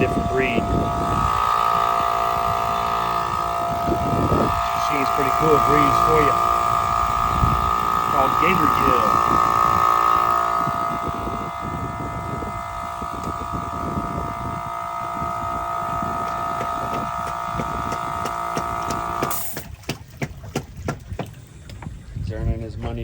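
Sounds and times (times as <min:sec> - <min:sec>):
small engine whining: 0:00.0 - 0:22.2
scattered knocks: 0:16.6 - 0:21.9.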